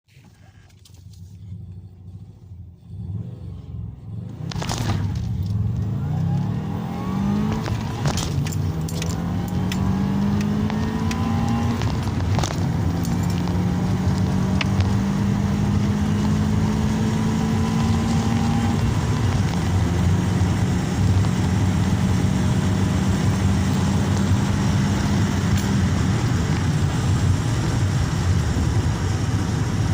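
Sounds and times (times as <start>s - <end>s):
car engine accelerating: 0.2s - 29.9s
gear change click: 7.5s - 15.0s.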